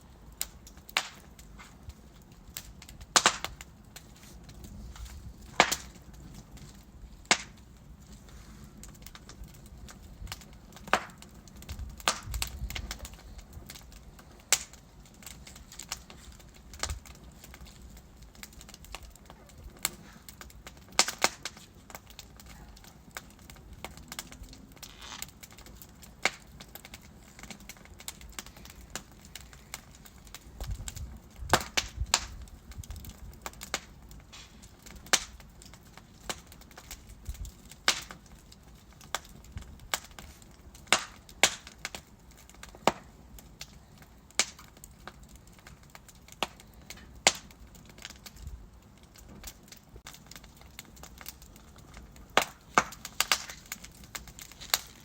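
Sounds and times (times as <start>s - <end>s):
burning logs popping and snapping: 0.0s - 55.0s
flames hissing and rumbling: 0.0s - 55.0s.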